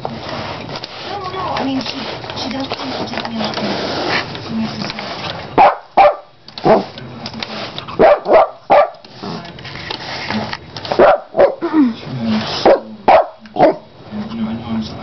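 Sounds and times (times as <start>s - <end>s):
dog barking: 5.6s - 6.9s, 8.0s - 9.0s, 11.0s - 11.6s, 12.6s - 13.9s.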